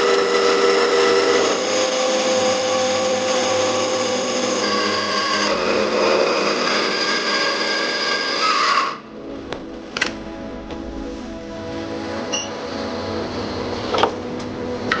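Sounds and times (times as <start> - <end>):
electric power tool running: 0.0 - 9.1.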